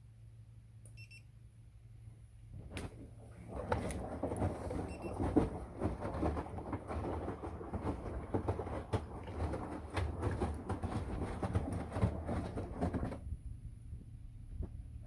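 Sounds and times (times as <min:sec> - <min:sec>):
washing machine hum: 0:01.8 - 0:15.0
tumbling load knocking and clattering: 0:03.5 - 0:13.4.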